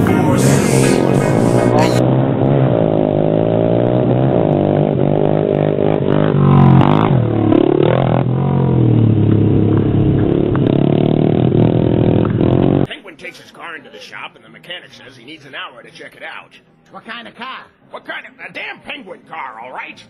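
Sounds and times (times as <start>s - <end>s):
pit bike engines revving: 0.0s - 12.9s.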